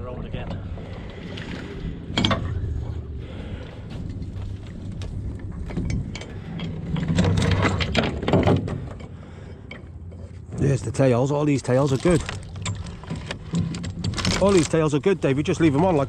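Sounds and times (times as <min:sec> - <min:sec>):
steady low hum: 0:00.0 - 0:16.0
metal chain links clanking: 0:12.1 - 0:15.0.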